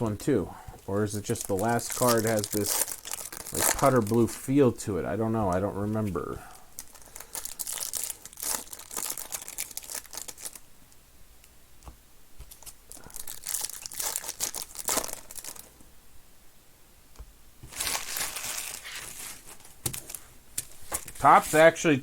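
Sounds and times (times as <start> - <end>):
wrappers tearing and crinkling: 0.0 - 4.4, 6.7 - 10.6, 12.5 - 15.7, 17.7 - 20.2.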